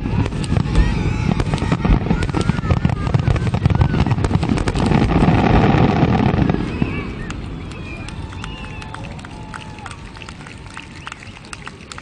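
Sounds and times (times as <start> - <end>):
fireworks low booms: 0.0 - 9.5
fireworks crackling pops: 0.0 - 12.0.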